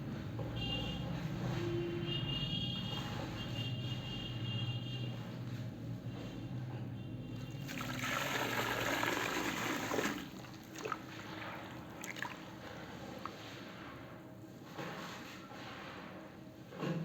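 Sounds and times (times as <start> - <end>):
liquid pouring splashing trickle: 7.4 - 13.5.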